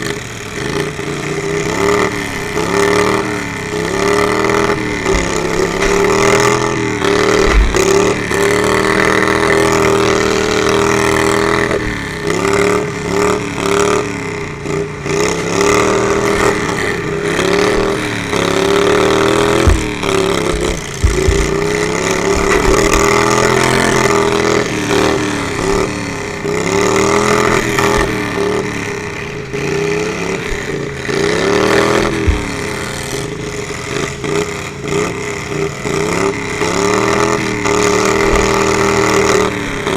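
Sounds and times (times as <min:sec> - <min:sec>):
riding lawnmower engines revving: 0:00.0 - 0:39.9
dull low thumps: 0:04.5 - 0:12.0, 0:19.0 - 0:24.5, 0:32.0 - 0:32.7.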